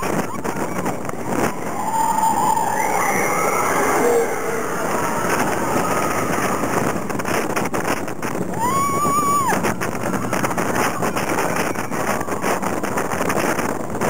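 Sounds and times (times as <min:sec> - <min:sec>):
roller coaster rattling on track: 0:00.0 - 0:14.0
wind noise on microphone: 0:00.0 - 0:14.0
rider screaming: 0:01.2 - 0:07.0, 0:08.5 - 0:09.6.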